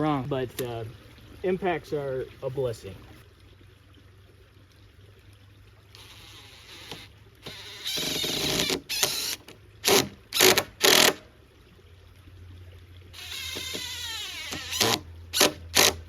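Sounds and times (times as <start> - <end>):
impact driver driving screw into wood: 6.8 - 11.2, 13.2 - 16.0.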